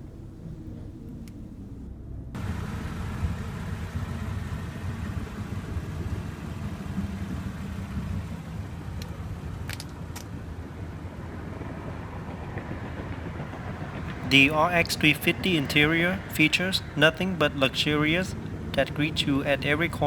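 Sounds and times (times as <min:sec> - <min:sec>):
steady low rumble: 0:13.5 - 0:20.0.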